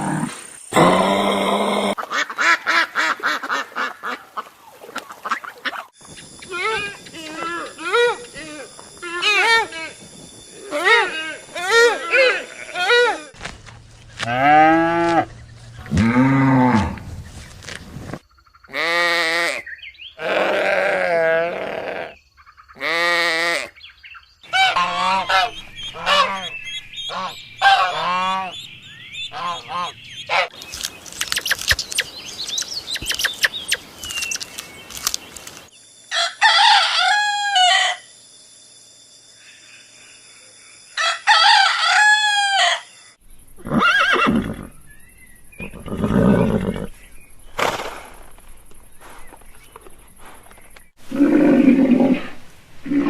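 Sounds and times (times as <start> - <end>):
chickens crowing: 24.5 - 26.5, 36.1 - 38.0, 41.0 - 42.9
geese honking: 24.5 - 28.6, 29.3 - 30.6.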